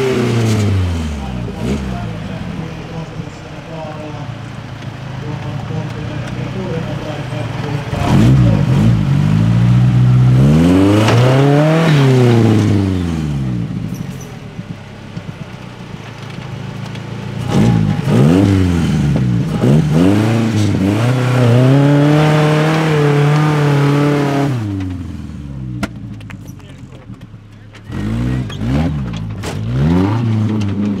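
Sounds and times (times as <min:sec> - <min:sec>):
off-road engine revving: 0:00.0 - 0:31.0.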